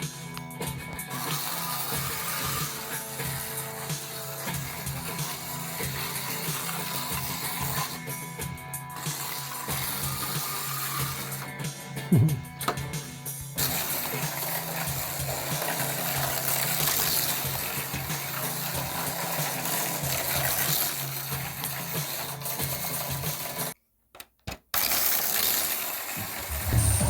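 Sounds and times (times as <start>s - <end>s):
metallic rattle of slot cars: 1.0s - 11.6s, 13.6s - 23.8s, 24.8s - 27.0s
slot cars humming: 26.0s - 27.0s.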